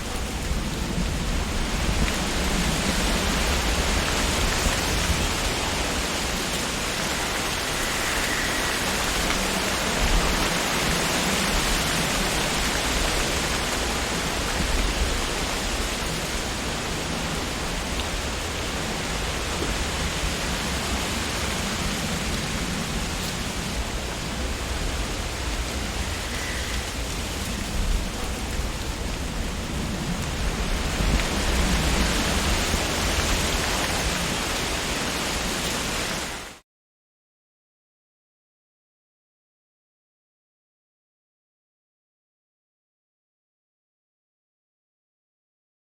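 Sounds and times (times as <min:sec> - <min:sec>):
wind rustling tree leaves: 0:00.0 - 0:36.6.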